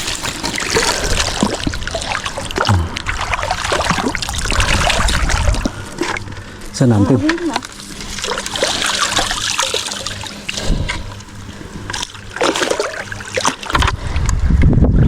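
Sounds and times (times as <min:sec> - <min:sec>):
shallow water splashing and trickling: 0:00.0 - 0:14.0
wind rumble on microphone: 0:02.7 - 0:05.8, 0:13.7 - 0:15.0.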